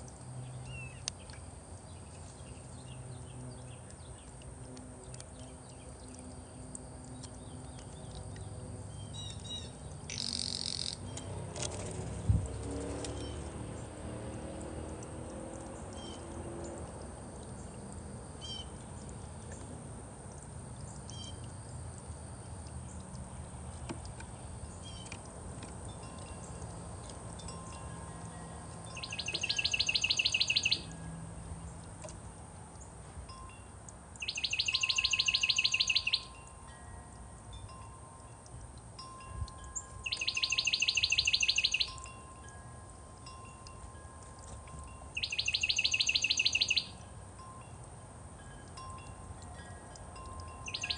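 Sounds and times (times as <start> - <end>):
songbird trilling: 0.4 - 4.2, 7.2 - 11.3, 16.0 - 16.3, 18.4 - 18.8, 21.1 - 21.4, 26.0 - 31.1, 34.2 - 36.5, 39.6 - 42.5, 44.8 - 47.1, 49.5 - 50.9
bird chirps: 8.9 - 11.3, 18.4 - 18.8, 21.0 - 21.4, 28.4 - 31.1, 34.2 - 36.4, 39.7 - 42.2, 45.1 - 47.0, 50.5 - 50.9
wind chime tones: 25.9 - 31.2, 34.8 - 45.3, 46.9 - 50.9.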